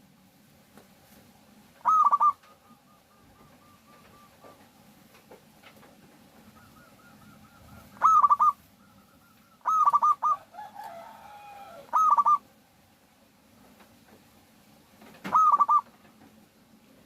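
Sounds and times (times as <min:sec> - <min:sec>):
lower wavering bird call: 0:01.8 - 0:04.6, 0:06.4 - 0:10.5, 0:11.4 - 0:12.5, 0:15.3 - 0:15.9
dove cooing: 0:01.8 - 0:05.0, 0:06.0 - 0:12.5, 0:15.2 - 0:16.2.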